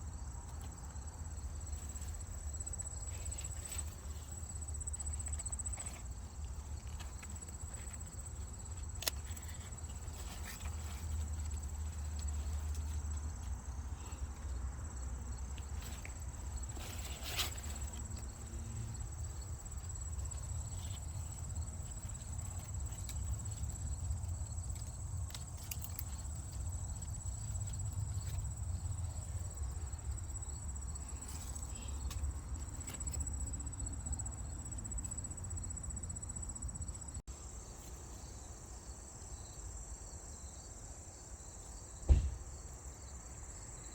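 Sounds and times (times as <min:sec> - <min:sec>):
insects chirring: 0:00.0 - 0:43.9
clicks and rustles: 0:15.5 - 0:29.3.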